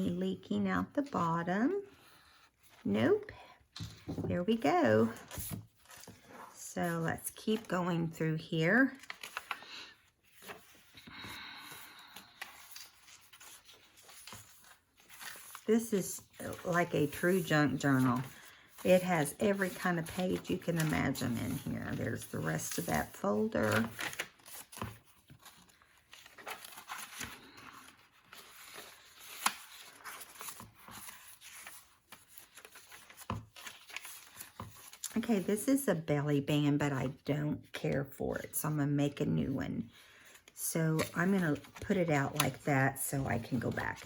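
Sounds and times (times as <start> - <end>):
paper pages rustling: 3.7 - 8.2, 8.8 - 35.7, 39.9 - 44.0.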